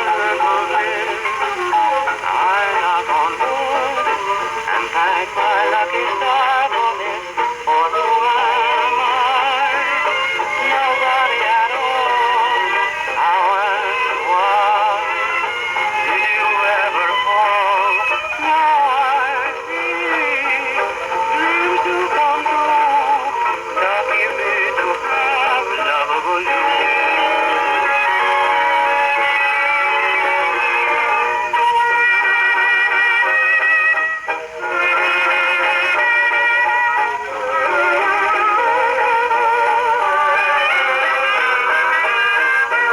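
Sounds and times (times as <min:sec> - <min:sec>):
record surface hiss: 0:00.0 - 0:42.9
singing voice on gramophone record: 0:00.0 - 0:42.9.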